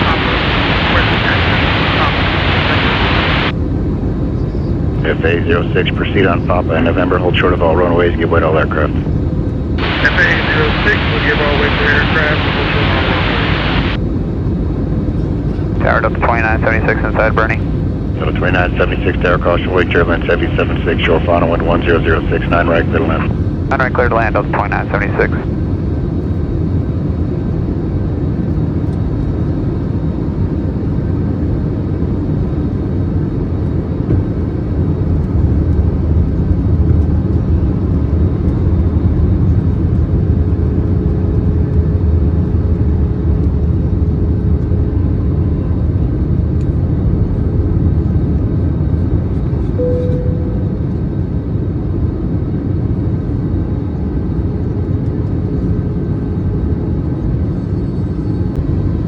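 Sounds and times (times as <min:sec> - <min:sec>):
faint steady hum: 0:00.0 - 0:03.5, 0:04.4 - 0:14.0, 0:15.2 - 0:25.6
airliner cabin rumble: 0:00.0 - 0:59.0
brief higher tone: 0:49.8 - 0:51.2.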